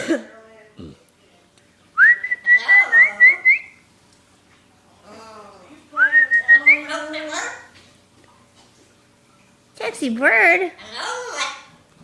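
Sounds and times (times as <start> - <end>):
parrot whistling: 2.0 - 3.8, 6.0 - 7.6
parrot chatter: 6.4 - 7.8, 10.8 - 11.8.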